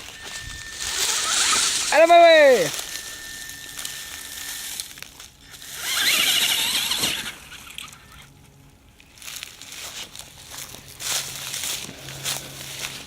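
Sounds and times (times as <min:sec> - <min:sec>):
rising and falling squeal: 0:00.0 - 0:08.2
electric toy truck motor whining: 0:00.0 - 0:08.3.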